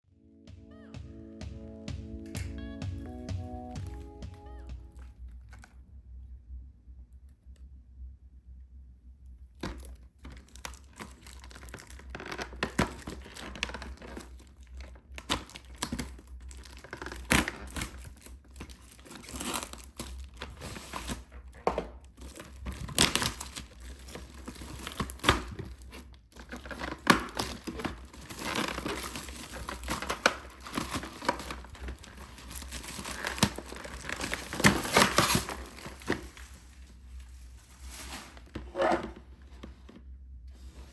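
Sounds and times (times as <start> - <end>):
plastic packaging crinkling and tearing: 9.6 - 39.9.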